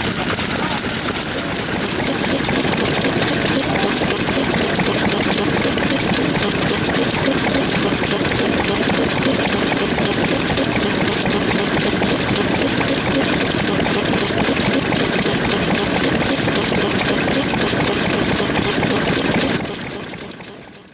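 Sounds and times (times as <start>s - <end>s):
stationary engines chugging: 0.0s - 20.9s.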